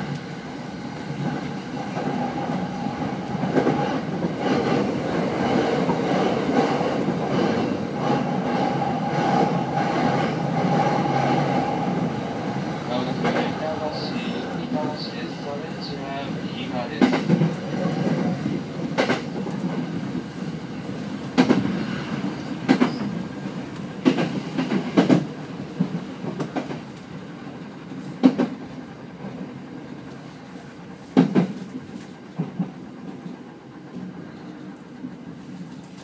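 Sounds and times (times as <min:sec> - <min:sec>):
train wheel rumble: 0:00.0 - 0:36.0
clacks over rail joints: 0:13.1 - 0:13.6, 0:17.0 - 0:19.8, 0:22.6 - 0:23.2, 0:23.8 - 0:27.1, 0:28.2 - 0:28.6, 0:31.1 - 0:33.3.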